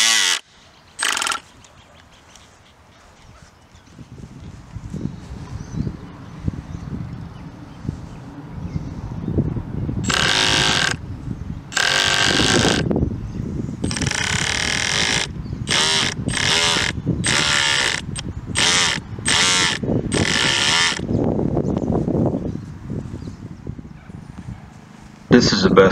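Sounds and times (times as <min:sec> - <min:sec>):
electric motor buzzing bursts: 0:00.0 - 0:01.5, 0:10.1 - 0:11.0, 0:11.7 - 0:12.9, 0:13.8 - 0:21.1.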